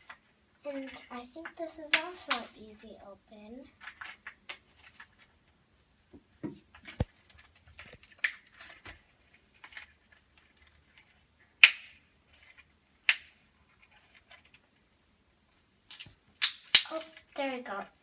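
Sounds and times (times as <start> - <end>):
plastic snapping: 11.6 - 12.0, 15.9 - 17.5
plastic packaging clicks: 15.9 - 17.6.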